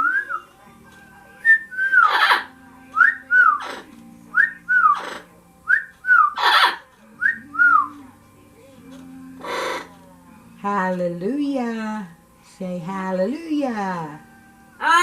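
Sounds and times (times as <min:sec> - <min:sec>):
parrot squawk: 0:02.0 - 0:02.5, 0:06.3 - 0:06.9, 0:09.4 - 0:09.9.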